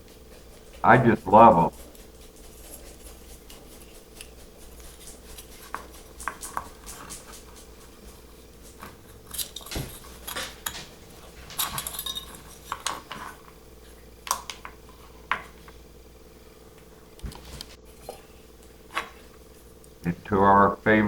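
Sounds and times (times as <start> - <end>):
faint steady hum: 0.0 - 21.0
metal tools clinking and rattling: 11.5 - 13.0.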